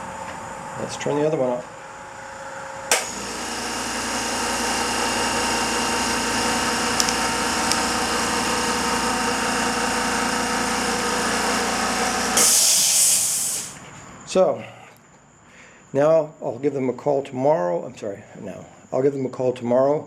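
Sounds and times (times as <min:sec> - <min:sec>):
compressor motor humming: 0:00.0 - 0:13.8
loud air hiss: 0:11.3 - 0:13.8.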